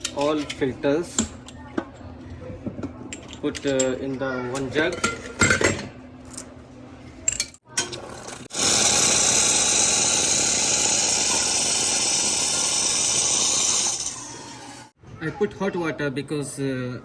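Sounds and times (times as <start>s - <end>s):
hot water pouring into a jug: 8.4s - 14.9s.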